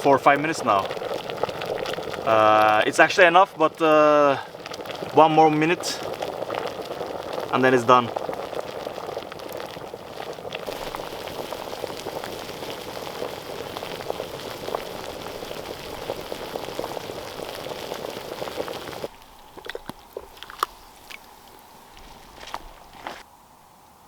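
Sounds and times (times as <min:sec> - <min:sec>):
water boiling and bubbling: 0:00.0 - 0:23.2.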